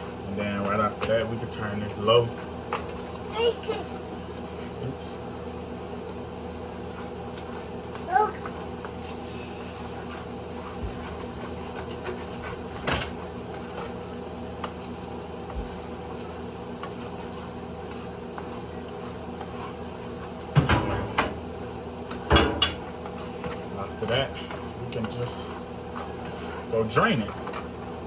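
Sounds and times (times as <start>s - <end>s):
meat simmering in a pan: 0.0s - 28.0s.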